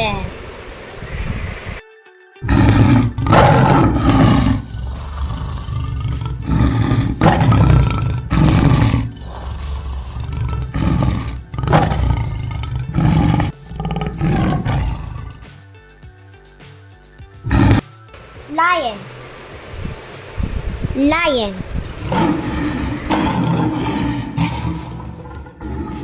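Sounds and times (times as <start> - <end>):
tiger roaring and growling: 2.4 - 15.5, 17.4 - 17.8, 19.9 - 26.0.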